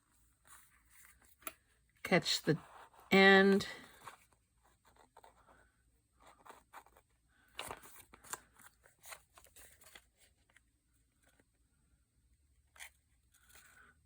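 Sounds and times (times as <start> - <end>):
paper rustling and crinkling: 6.2 - 11.5.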